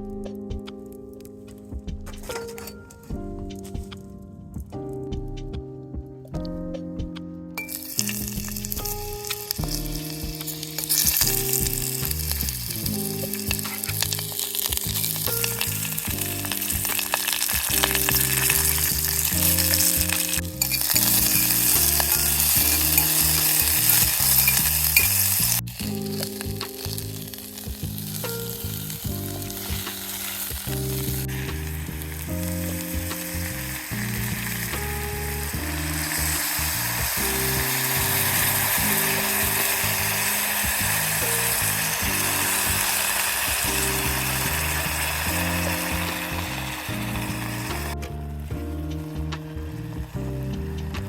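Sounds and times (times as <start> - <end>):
background music low notes: 0.0 - 51.0
food sizzling in a pan: 7.7 - 48.0.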